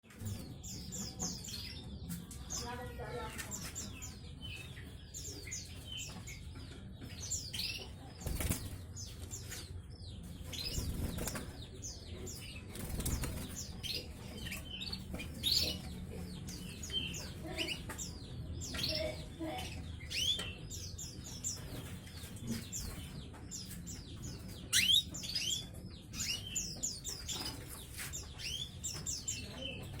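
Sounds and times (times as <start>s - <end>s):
canaries chirping and singing: 0.0s - 30.0s
wings fluttering: 8.2s - 9.0s, 12.7s - 13.7s.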